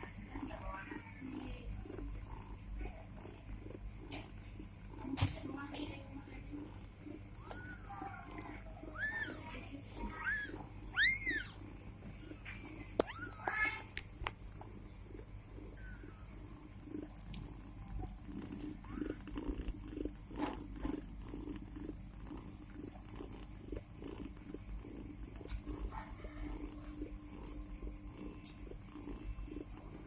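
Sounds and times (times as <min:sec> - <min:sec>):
cat purring: 0:00.0 - 0:30.0
kitten mewing: 0:07.4 - 0:11.7, 0:12.3 - 0:14.0.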